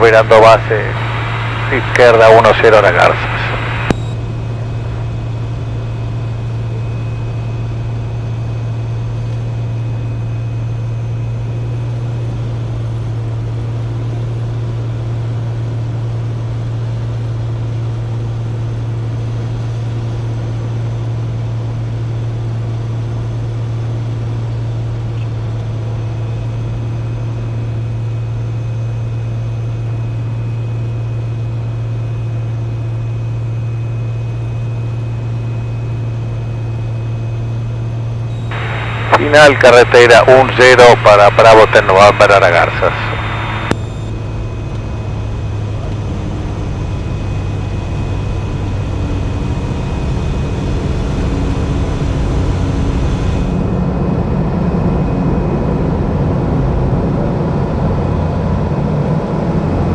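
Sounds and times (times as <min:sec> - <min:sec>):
propeller plane engine droning: 0:00.0 - 0:21.6, 0:38.3 - 0:59.9.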